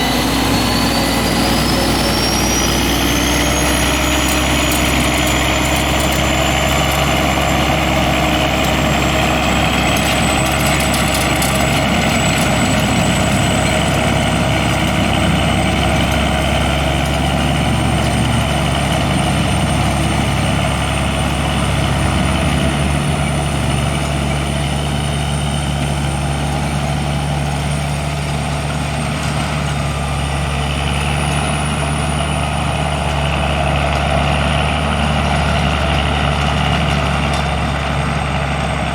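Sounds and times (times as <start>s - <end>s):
high whine rising in pitch: 0.0s - 9.6s
diesel engine running: 0.0s - 38.9s.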